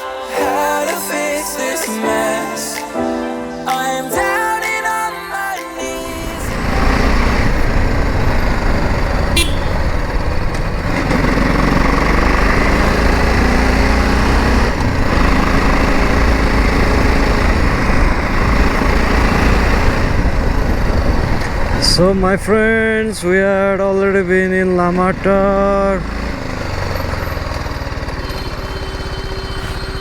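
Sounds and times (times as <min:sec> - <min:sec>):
wind and road noise: 0:06.0 - 0:30.0
motorcycle engine running: 0:06.4 - 0:30.0.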